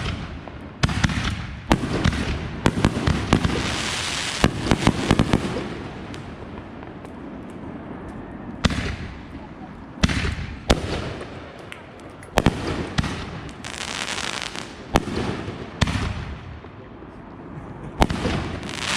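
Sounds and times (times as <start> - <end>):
fireworks bangs: 0.0 - 7.3, 8.6 - 9.4, 10.0 - 16.8, 17.9 - 18.9
fireworks crackling: 0.0 - 7.7, 10.0 - 16.4, 18.0 - 18.9.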